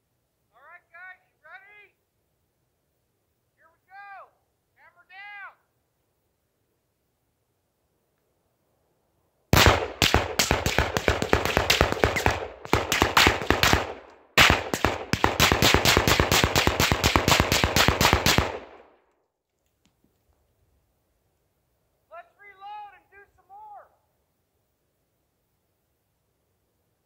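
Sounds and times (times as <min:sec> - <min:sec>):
rifle rapid fire: 0:09.5 - 0:18.9.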